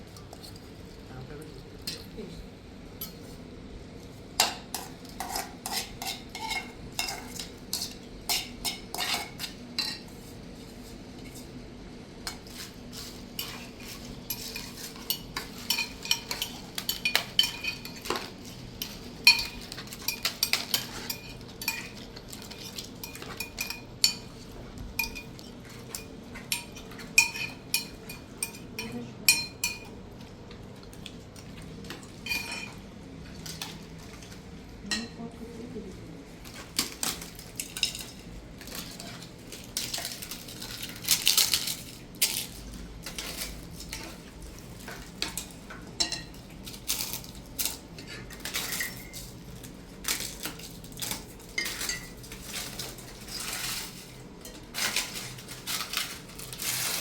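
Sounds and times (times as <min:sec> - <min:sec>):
cutlery clinking against dishes: 0:04.4 - 0:10.1, 0:12.3 - 0:30.0, 0:31.9 - 0:32.8, 0:34.9 - 0:35.2, 0:36.5 - 0:49.4, 0:50.0 - 0:57.0.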